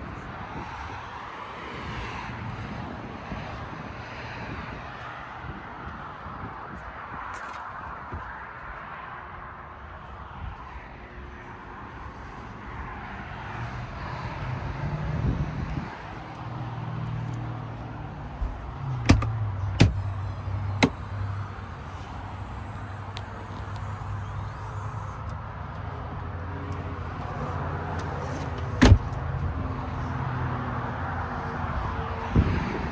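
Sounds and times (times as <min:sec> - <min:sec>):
engine humming: 0:17.2 - 0:29.9
sharp clicks or knocks: 0:18.5 - 0:25.2.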